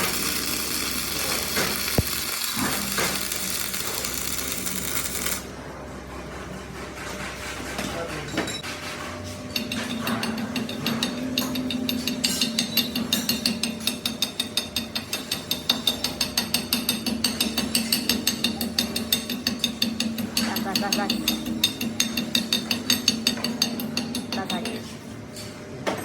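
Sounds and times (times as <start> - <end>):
workshop machine motor humming: 0.0 - 5.5.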